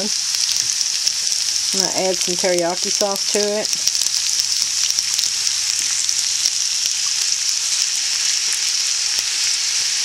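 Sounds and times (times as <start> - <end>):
rice sizzling in oil: 0.0 - 10.0.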